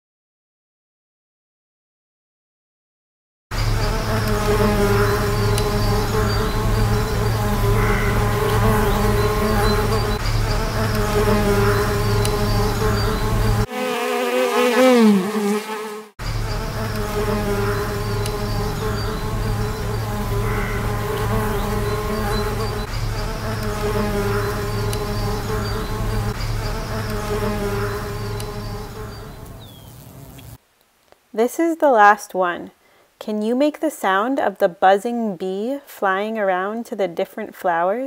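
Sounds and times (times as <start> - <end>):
bumblebee buzzing: 3.5 - 30.6.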